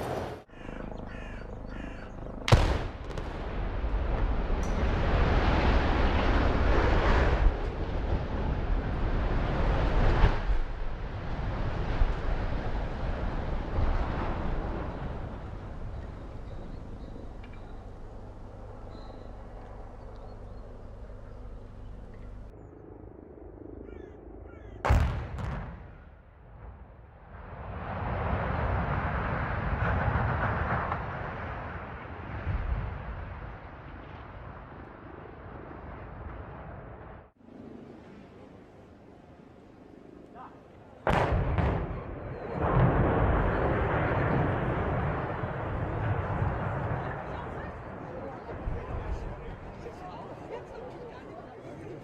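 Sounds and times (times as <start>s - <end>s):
explosive crack: 2.5s - 16.4s, 24.9s - 34.8s, 41.1s - 47.9s
structure collapsing rumble: 2.5s - 22.5s, 26.5s - 37.3s, 41.1s - 51.4s.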